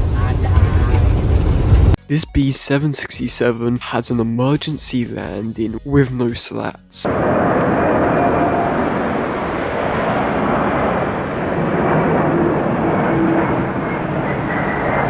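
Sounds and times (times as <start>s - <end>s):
jet engines running: 0.0s - 2.0s, 7.1s - 15.0s
faint whining tones: 7.1s - 15.0s.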